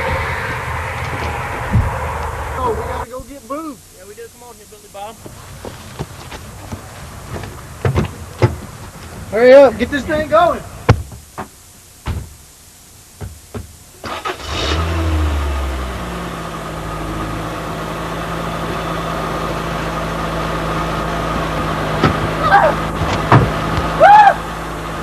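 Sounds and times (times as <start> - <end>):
knocks: 6.0 - 8.7, 10.9 - 12.4, 13.2 - 13.8, 23.0 - 23.9
vehicle engine starting and idling: 13.9 - 25.0.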